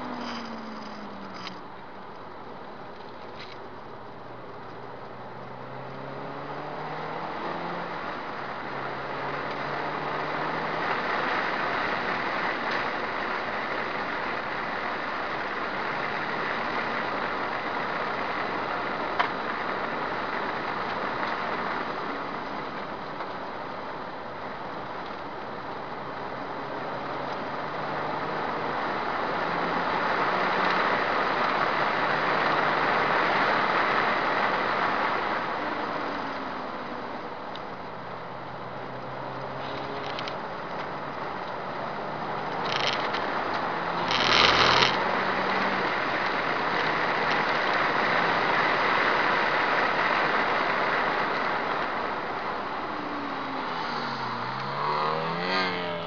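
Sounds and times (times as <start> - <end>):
wind and road noise: 0.0 - 56.0
car engine accelerating: 3.8 - 13.1, 25.8 - 56.0.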